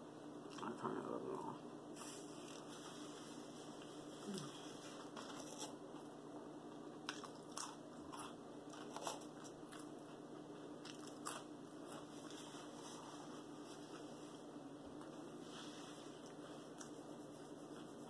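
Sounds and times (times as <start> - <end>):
person chewing food: 3.8 - 14.1.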